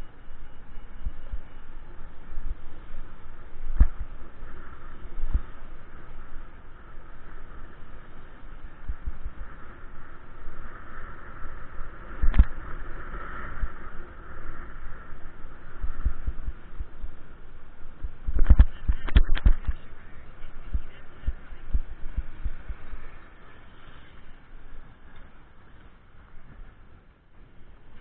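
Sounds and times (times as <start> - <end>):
wind on microphone: 0.0 - 28.0
low thumps and rumble: 1.0 - 5.7, 14.7 - 23.3.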